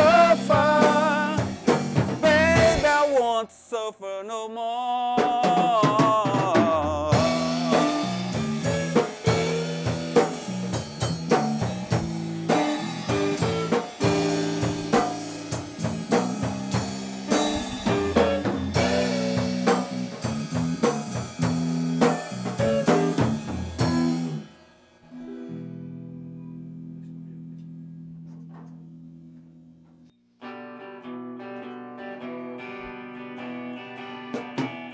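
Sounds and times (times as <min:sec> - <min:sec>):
blues band instrumental: 0:00.0 - 0:03.4, 0:05.3 - 0:24.5, 0:30.4 - 0:34.9.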